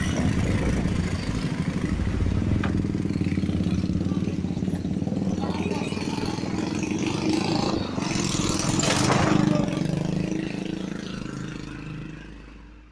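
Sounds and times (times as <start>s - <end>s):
vehicle engine running: 0.0s - 12.7s.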